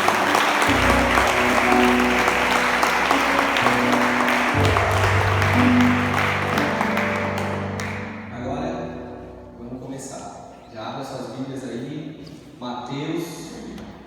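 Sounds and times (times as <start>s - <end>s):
congregation applauding: 0.0s - 8.4s
soft worship music: 0.0s - 14.0s.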